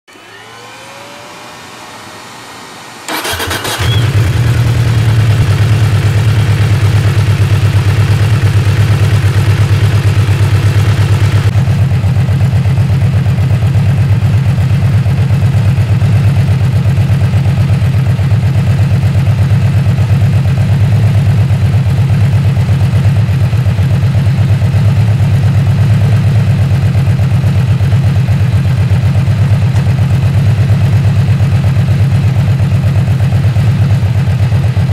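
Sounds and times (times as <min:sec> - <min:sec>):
starter motor cranking: 0:03.1 - 0:04.4
motorcycle engine deep idle: 0:03.1 - 0:34.9.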